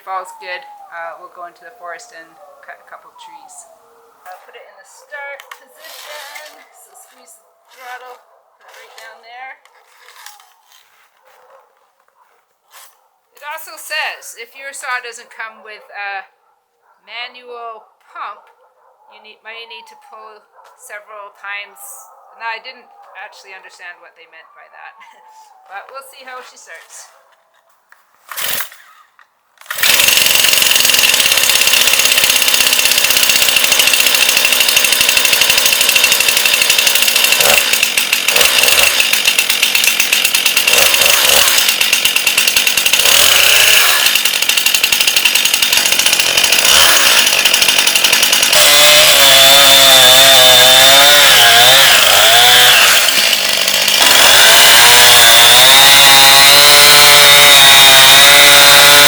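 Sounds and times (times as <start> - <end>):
chainsaw engine running: 28.4 - 28.8, 29.6 - 59.0.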